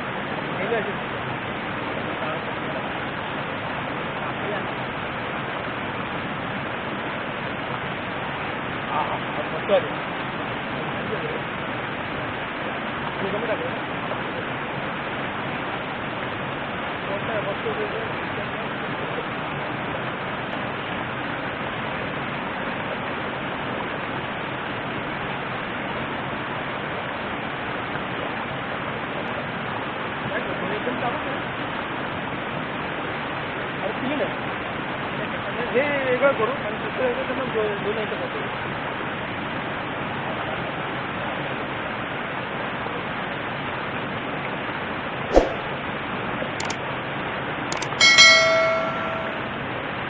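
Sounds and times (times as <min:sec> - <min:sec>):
short sharp knock: 0:45.3 - 0:45.6.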